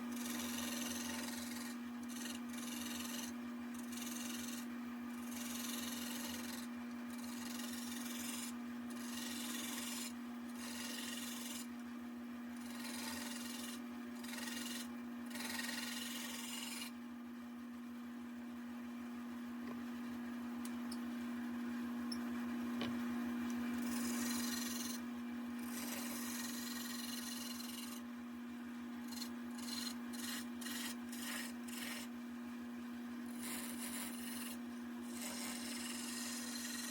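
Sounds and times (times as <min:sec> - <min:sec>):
wood lathe motor hum: 0:00.0 - 0:11.7, 0:12.5 - 0:17.0, 0:23.7 - 0:25.0, 0:25.6 - 0:28.1, 0:29.0 - 0:32.1, 0:33.3 - 0:36.9.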